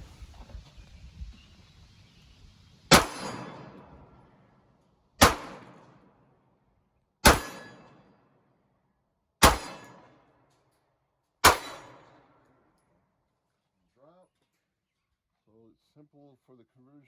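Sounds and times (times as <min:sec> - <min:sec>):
pistol shots with echo: 0:02.9 - 0:04.2, 0:05.2 - 0:06.1, 0:07.2 - 0:08.1, 0:09.4 - 0:10.2, 0:11.4 - 0:12.3.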